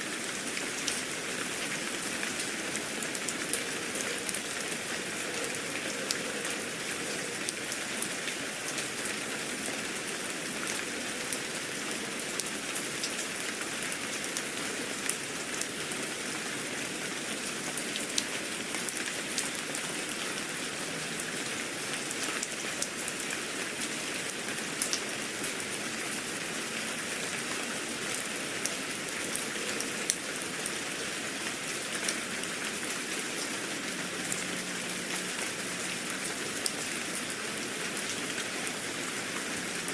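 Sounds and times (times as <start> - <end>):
rain drops pattering on a surface: 0.0 - 39.9.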